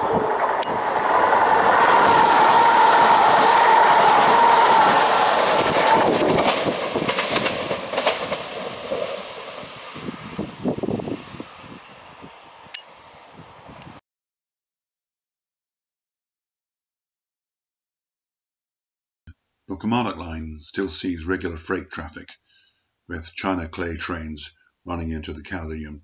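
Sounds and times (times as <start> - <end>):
passenger train rushing past: 0.0 - 13.4
train wheels clicking over rails: 2.0 - 10.0.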